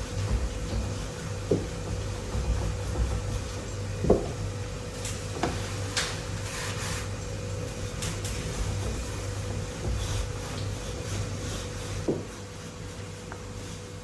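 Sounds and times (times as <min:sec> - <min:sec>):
steady low hum: 0:00.0 - 0:05.5.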